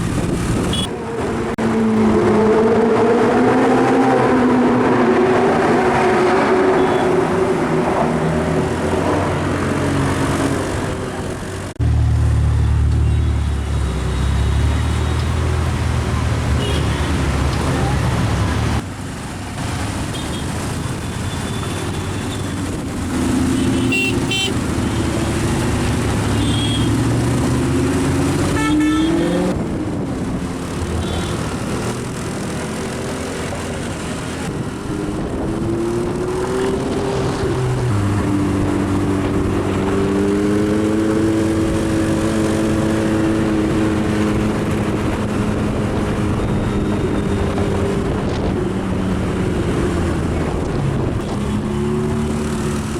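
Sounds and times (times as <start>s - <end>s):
car engines in traffic: 0.0s - 52.9s
car horns tooting: 23.4s - 25.1s, 26.2s - 27.2s, 28.4s - 29.5s.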